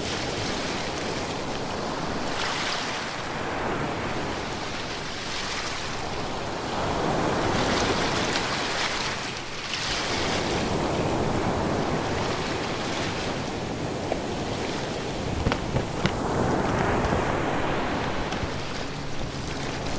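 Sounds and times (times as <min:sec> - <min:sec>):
water crackling in surf: 0:10.5 - 0:19.9.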